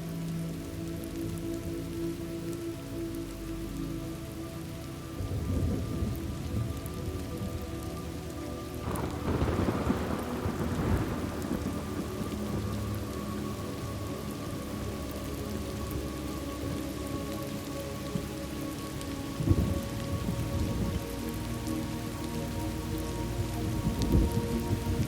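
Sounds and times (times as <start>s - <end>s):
steady rain: 0.0s - 25.0s
rolling thunder: 8.8s - 13.0s.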